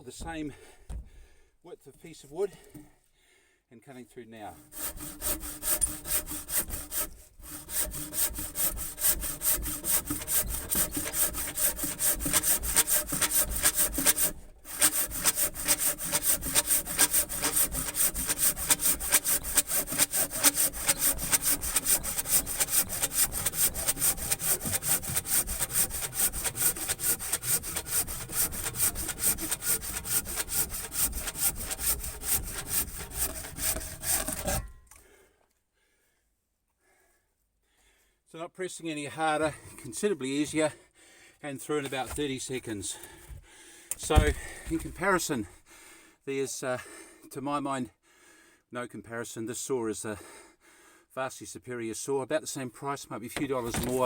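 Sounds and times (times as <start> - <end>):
handsaw cutting wood: 4.5 - 34.8, 43.0 - 45.1, 53.4 - 54.0.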